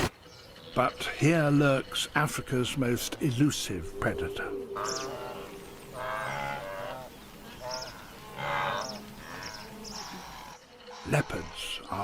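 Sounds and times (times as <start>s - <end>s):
wildebeest lowing calls: 4.1s - 12.0s.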